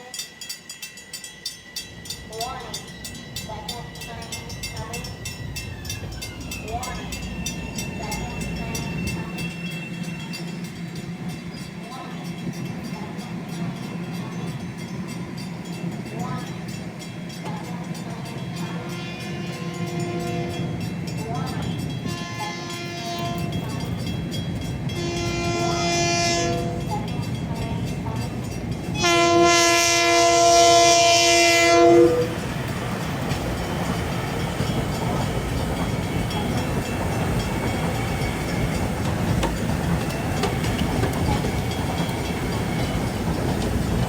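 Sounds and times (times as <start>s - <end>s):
train rumble and wheel clatter: 0.0s - 44.0s
train horn blast: 18.6s - 20.9s, 22.1s - 23.6s, 24.9s - 26.9s, 29.0s - 32.6s.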